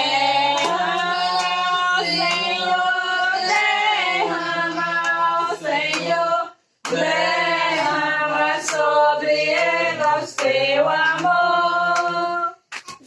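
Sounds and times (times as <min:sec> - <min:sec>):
woman singing a hymn: 0:00.0 - 0:06.5.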